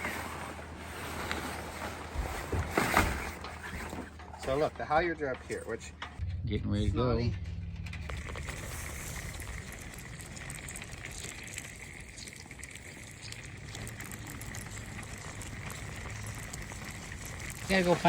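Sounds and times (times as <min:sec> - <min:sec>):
low rumble: 0:06.1 - 0:12.0.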